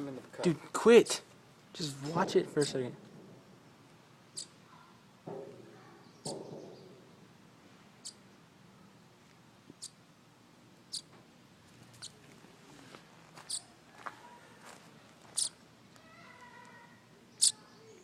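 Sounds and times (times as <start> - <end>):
young bird peeping: 4.2 - 4.6, 8.0 - 8.4, 9.7 - 10.0, 10.8 - 11.2, 12.0 - 12.2, 13.5 - 13.8, 15.4 - 15.6, 17.3 - 18.0.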